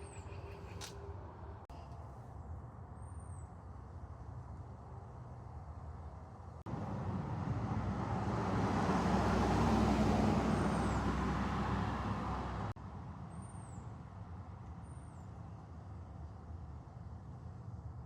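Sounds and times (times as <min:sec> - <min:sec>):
bird chirping: 0:00.0 - 0:01.1
road vehicle passing by: 0:06.7 - 0:12.8.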